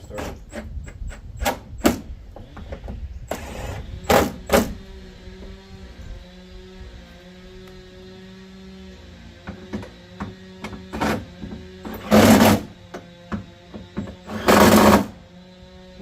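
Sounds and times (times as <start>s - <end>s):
impact wrench bursts: 14.2s - 15.2s.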